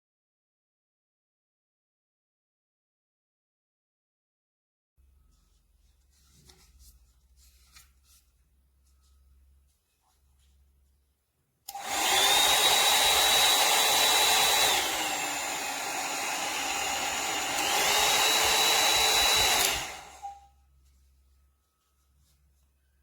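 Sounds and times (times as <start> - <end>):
hair dryer switch: 11.7 - 20.4
hair dryer brush motor whine: 11.7 - 20.5.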